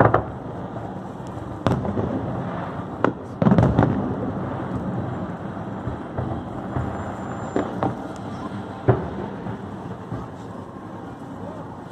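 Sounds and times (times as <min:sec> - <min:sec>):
fireworks bangs: 0:00.0 - 0:11.9
fireworks rumble and crackle: 0:00.0 - 0:11.9.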